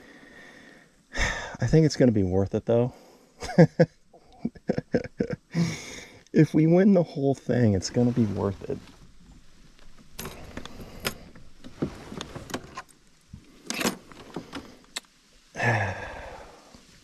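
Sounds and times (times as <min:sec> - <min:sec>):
fishing gear rattling: 0:08.6 - 0:15.0.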